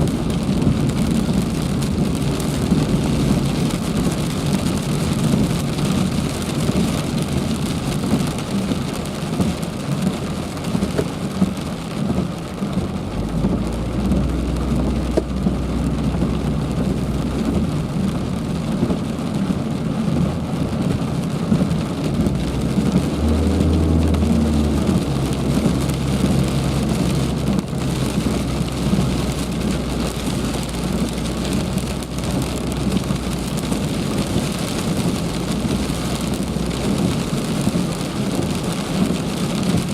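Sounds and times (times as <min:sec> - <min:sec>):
heavy rain falling: 0:00.0 - 0:39.9
low rumble: 0:11.2 - 0:39.9.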